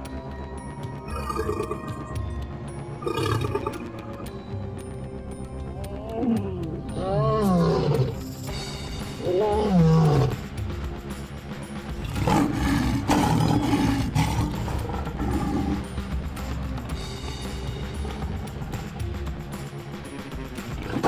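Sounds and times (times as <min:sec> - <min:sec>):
background music: 0:00.0 - 0:21.0
lion roaring: 0:01.1 - 0:02.0, 0:03.0 - 0:04.0, 0:06.2 - 0:08.2, 0:09.2 - 0:10.4, 0:12.0 - 0:16.2, 0:20.7 - 0:21.0.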